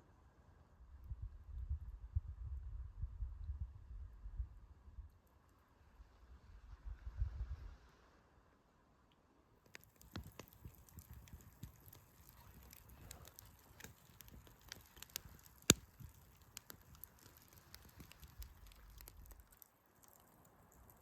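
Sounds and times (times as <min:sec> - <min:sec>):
campfire crackling: 0:09.6 - 0:21.0
loud pop from fire: 0:09.7 - 0:19.4.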